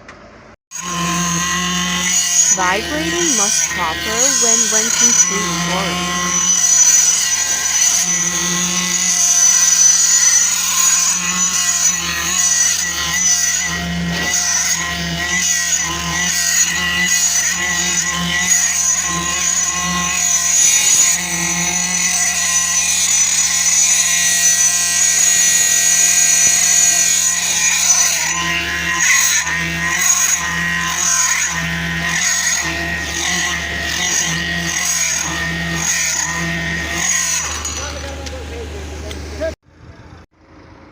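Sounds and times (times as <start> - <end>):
high motor whine: 0.8 - 29.9.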